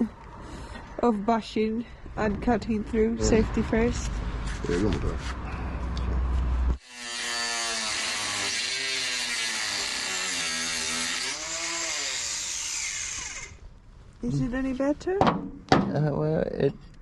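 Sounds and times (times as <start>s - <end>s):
angle grinder cutting metal: 6.8s - 13.6s.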